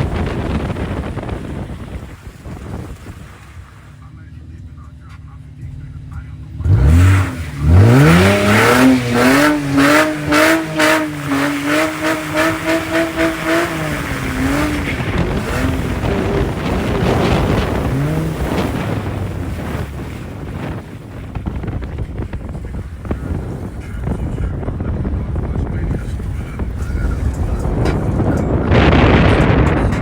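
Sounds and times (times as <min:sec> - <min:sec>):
car engine revving hard: 0:06.0 - 0:29.6
rushing noise: 0:06.7 - 0:30.0.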